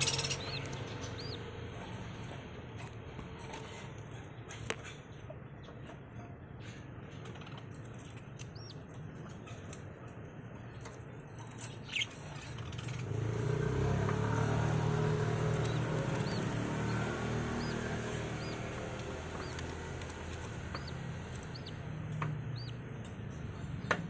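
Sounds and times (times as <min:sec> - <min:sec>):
parrots chirping: 0:00.0 - 0:01.5, 0:11.7 - 0:12.8, 0:14.2 - 0:21.9, 0:22.5 - 0:22.8.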